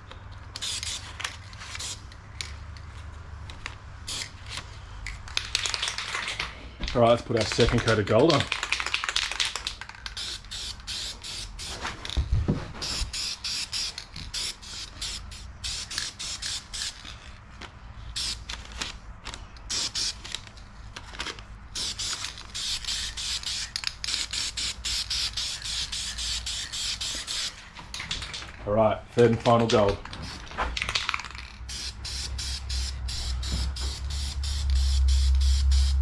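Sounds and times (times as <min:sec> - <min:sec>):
spray paint hissing: 0:00.6 - 0:01.1, 0:01.7 - 0:02.1, 0:04.1 - 0:04.5, 0:08.6 - 0:11.8, 0:12.8 - 0:17.0, 0:18.2 - 0:18.5, 0:19.7 - 0:20.3, 0:21.7 - 0:27.6, 0:30.2 - 0:30.5, 0:31.7 - 0:36.0.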